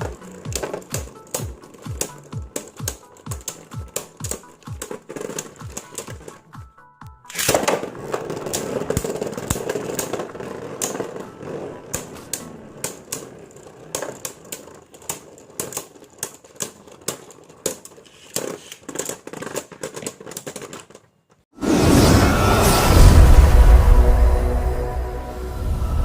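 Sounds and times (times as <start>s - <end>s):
top clacking against walls: 0.0s - 6.6s, 7.3s - 21.4s
spinning top whirring: 0.0s - 6.7s, 7.3s - 21.1s.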